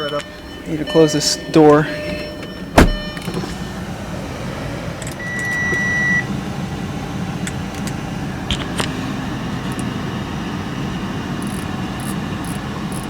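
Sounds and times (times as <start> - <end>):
car warning beep: 0.0 - 3.8, 5.2 - 6.3
steady low hum: 2.3 - 4.4.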